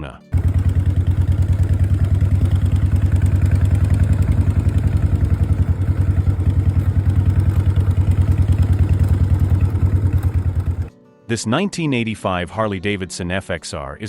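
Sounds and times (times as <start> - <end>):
motorcycle engine running steadily: 0.3 - 10.9.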